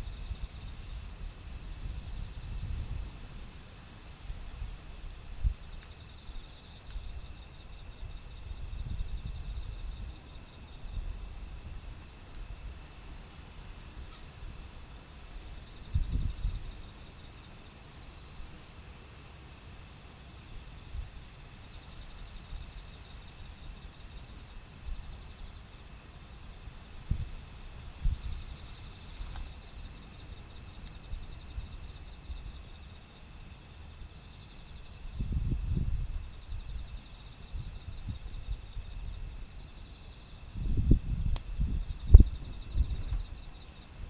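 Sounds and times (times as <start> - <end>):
wind gusting against microphone: 0.0 - 6.3, 15.6 - 16.9, 26.9 - 30.0, 35.0 - 44.0
insects chirping: 0.0 - 44.0
outdoor hiss: 0.0 - 44.0
sharp snap: 41.3 - 41.6.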